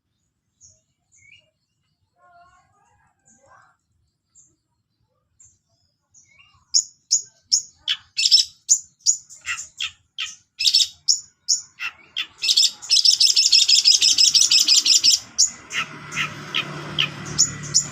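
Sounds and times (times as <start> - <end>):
bird chirping and trilling: 6.0 - 17.9.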